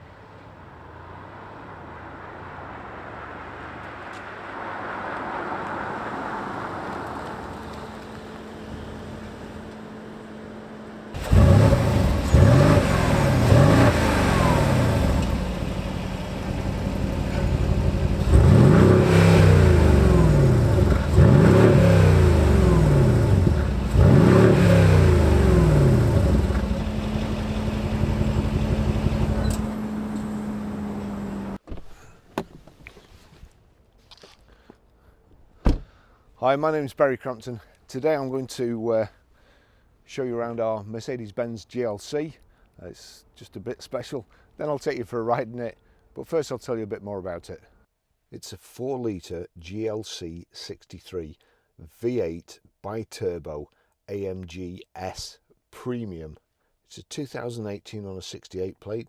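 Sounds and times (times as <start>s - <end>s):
car engine idling: 7.9s - 31.6s
car engine revving: 11.2s - 31.6s.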